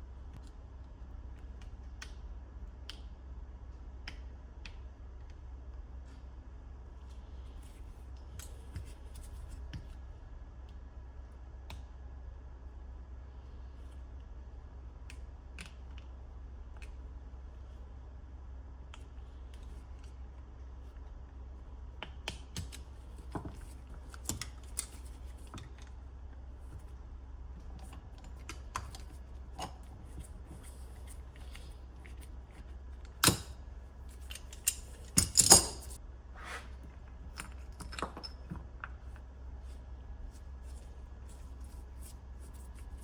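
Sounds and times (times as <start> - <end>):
steady low hum: 0.0 - 43.0
metal parts clicking and tapping: 27.6 - 32.3, 33.0 - 36.0, 37.3 - 38.9
metal parts clattering: 34.1 - 36.0.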